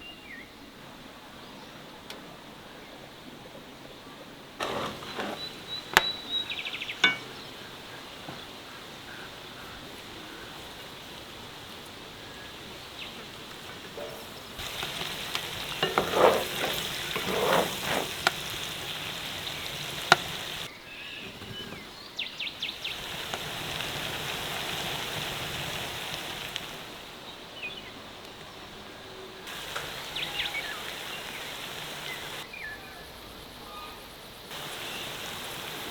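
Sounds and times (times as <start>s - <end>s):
food sizzling in frying: 4.6s - 8.5s, 12.6s - 21.8s, 22.5s - 27.1s, 29.5s - 32.5s, 34.5s - 35.9s
clinks: 7.0s - 7.4s.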